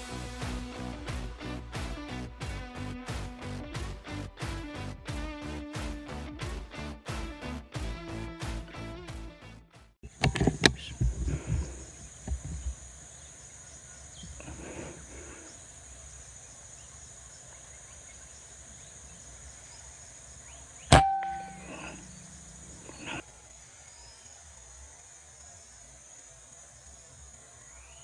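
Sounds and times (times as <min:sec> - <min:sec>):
air rifle shot: 0:20.9 - 0:23.2
handling knocks: 0:20.9 - 0:23.2
metallic ring: 0:20.9 - 0:23.2
steady high drone: 0:20.9 - 0:23.2.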